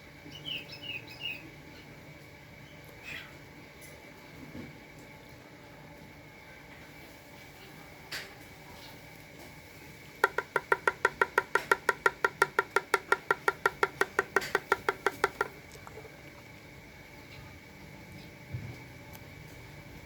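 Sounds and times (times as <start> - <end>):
dove pecking at feed: 10.2 - 15.6.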